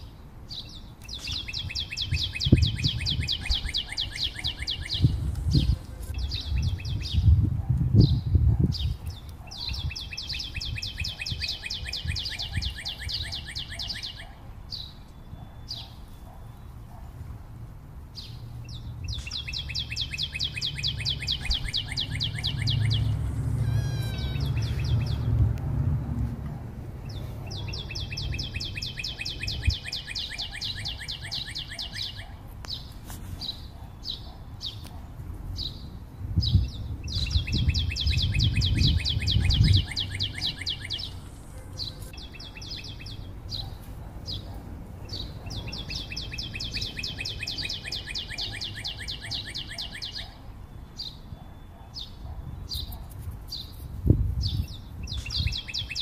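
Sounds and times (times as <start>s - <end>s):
bird chirps: 0.0s - 7.4s, 8.0s - 17.2s, 18.2s - 25.4s, 26.0s - 56.0s
bird trilling: 1.1s - 7.3s, 8.8s - 16.7s, 19.0s - 25.3s, 27.0s - 32.4s, 37.1s - 50.4s
low rumbling: 22.3s - 28.3s.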